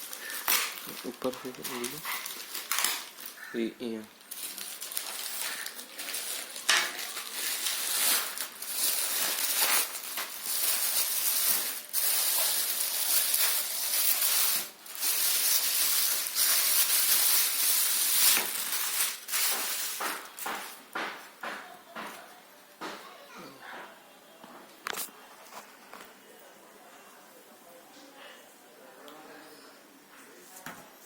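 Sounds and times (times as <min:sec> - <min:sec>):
packaging rustling and crinkling: 0:00.0 - 0:20.8.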